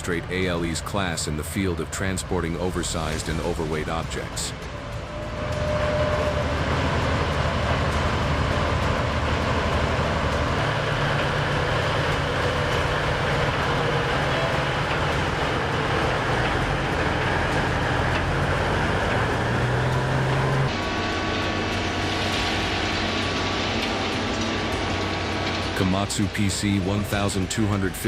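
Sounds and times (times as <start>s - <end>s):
diesel engines droning under load: 0.0s - 28.0s.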